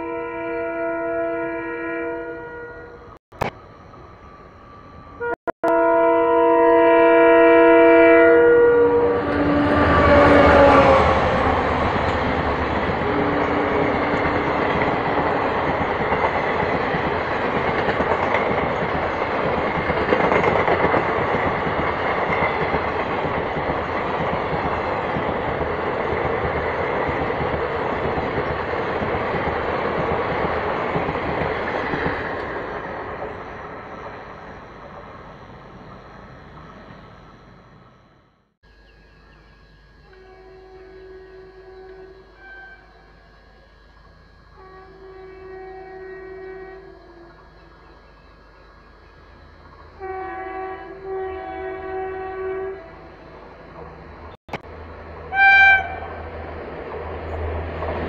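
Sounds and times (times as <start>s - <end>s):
train horn chord: 0.0s - 3.2s, 5.2s - 15.3s, 40.0s - 48.0s, 49.9s - 53.9s, 55.1s - 56.5s
train rumble and wheel clatter: 7.3s - 38.2s, 49.7s - 58.0s.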